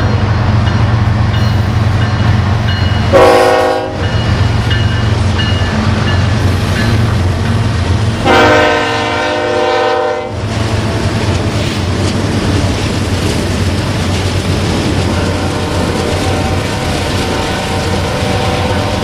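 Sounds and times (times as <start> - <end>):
train rumbling: 0.0 - 19.0
locomotive horn: 3.1 - 4.1, 8.2 - 11.1, 15.2 - 19.0.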